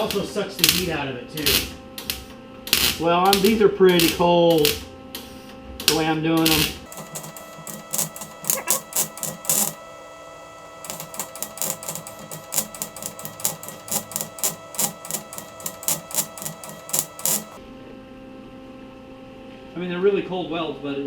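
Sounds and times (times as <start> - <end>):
wire welder arc crackle: 6.8 - 17.6.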